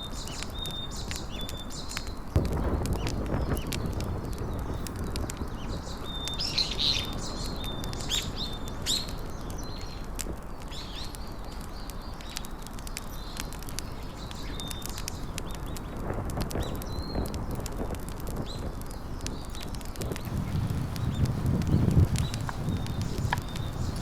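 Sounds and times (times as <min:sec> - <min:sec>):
small birds chirping: 0:00.0 - 0:24.0
sharp clicks: 0:20.0 - 0:24.0.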